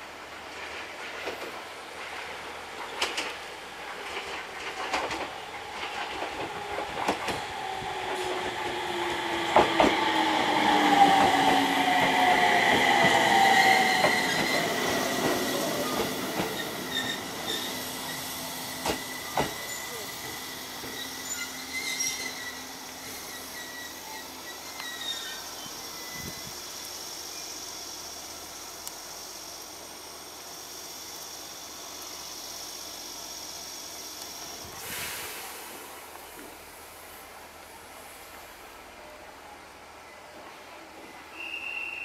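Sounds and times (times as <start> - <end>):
train wheels clicking over rail joints: 2.8 - 22.5
high brake squeal: 13.2 - 26.5, 41.3 - 42.0.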